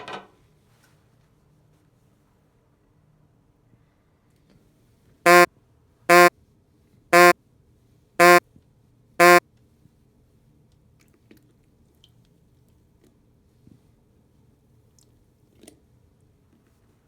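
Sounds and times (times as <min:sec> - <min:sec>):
microwave oven buzzy beeps: 0:05.3 - 0:05.5, 0:06.1 - 0:06.3, 0:07.2 - 0:07.4, 0:08.2 - 0:08.4, 0:09.2 - 0:09.4.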